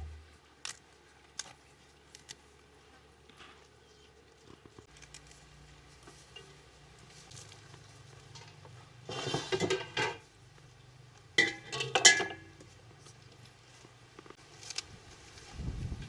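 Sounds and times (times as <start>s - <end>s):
metal pots and utensils clattering: 8.3s - 10.2s, 11.4s - 12.6s.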